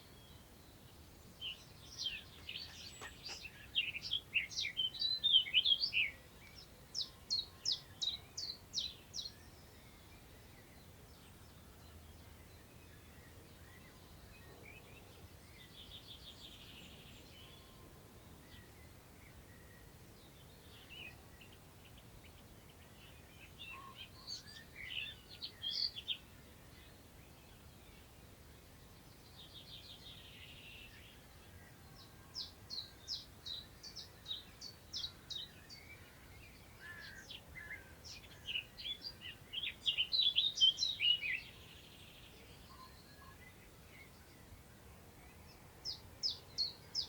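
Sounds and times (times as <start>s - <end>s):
faint low wind noise: 0.0s - 47.0s
songbirds singing: 0.0s - 47.0s.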